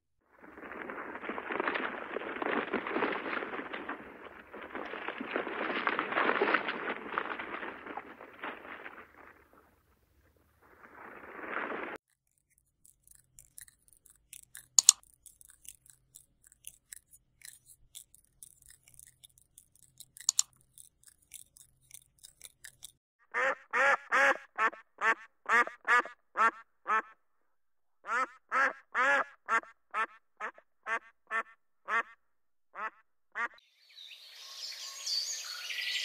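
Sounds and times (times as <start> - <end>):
faint ticks and clicks: 12.2 - 23.0.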